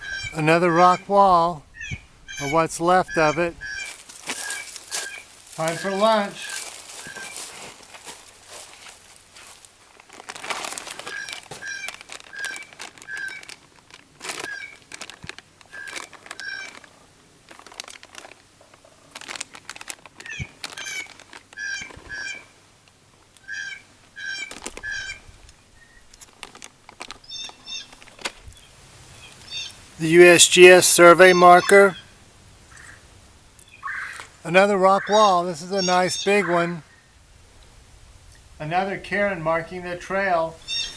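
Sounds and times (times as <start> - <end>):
bird calling short nasal notes: 0.0 - 7.6, 27.2 - 28.0, 28.6 - 37.1, 40.4 - 40.9
crinkling and rustling: 3.8 - 23.4, 24.3 - 29.5.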